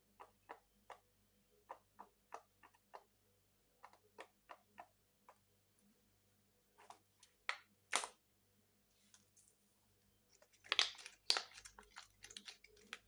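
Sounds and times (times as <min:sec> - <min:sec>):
crinkly handling noise: 0:08.9 - 0:13.0.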